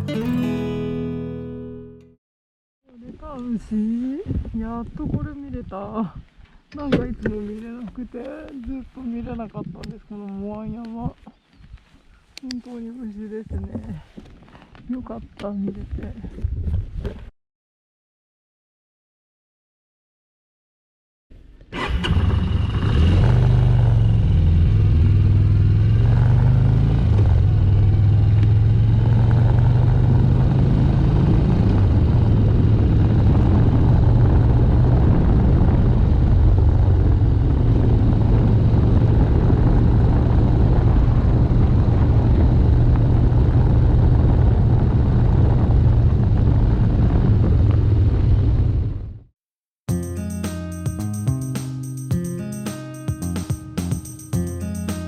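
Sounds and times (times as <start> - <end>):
road noise: 21.7 - 49.2
motorcycle engine drone: 21.7 - 49.3.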